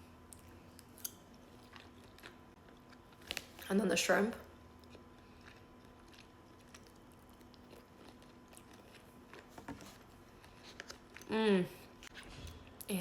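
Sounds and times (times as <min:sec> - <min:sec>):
chewing food: 0:00.3 - 0:03.6, 0:04.4 - 0:12.9.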